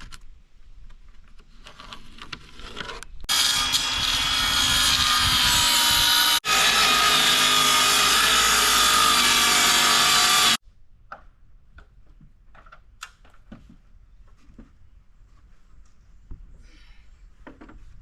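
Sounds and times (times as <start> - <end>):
power saw cutting plywood: 3.3 - 10.6.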